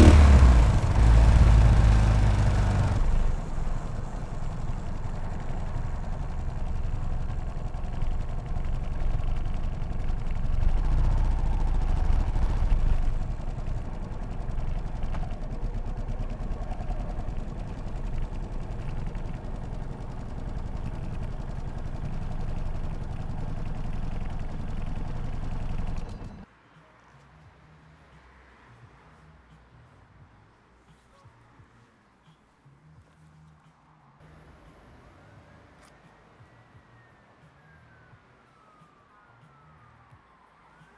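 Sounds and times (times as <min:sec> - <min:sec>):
motorcycle engine running: 0:00.0 - 0:26.4.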